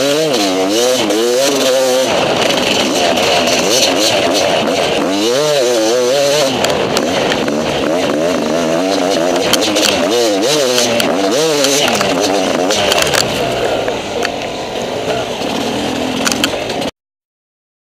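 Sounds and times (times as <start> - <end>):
motorcycle knocking over bumps: 0.0 - 14.0
motorcycle engine revving: 0.0 - 16.9.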